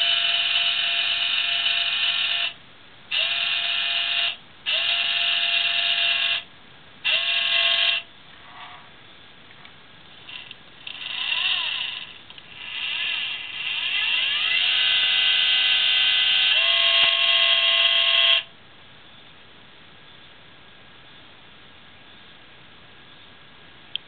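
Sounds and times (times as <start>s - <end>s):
telescope mount motors whining: 0.0s - 6.4s, 7.0s - 8.1s, 10.3s - 18.5s.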